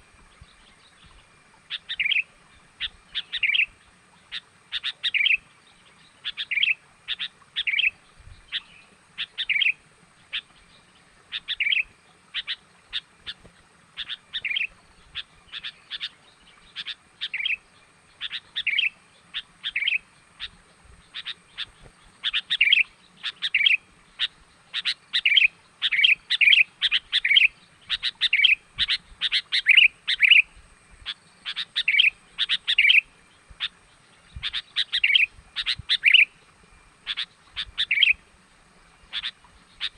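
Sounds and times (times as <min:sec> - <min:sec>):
bird chirping notes: 0:14.0 - 0:36.4, 0:37.0 - 0:38.2, 0:38.9 - 0:39.9.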